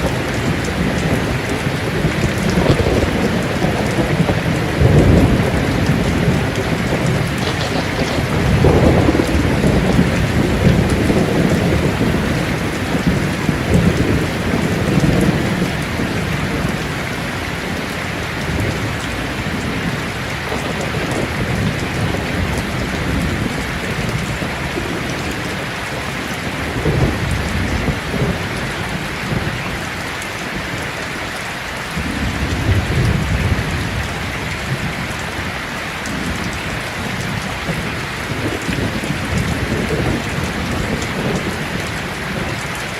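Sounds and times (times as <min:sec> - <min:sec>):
rolling thunder: 0:00.0 - 0:29.9
heavy rain on a tin roof: 0:00.0 - 0:42.9.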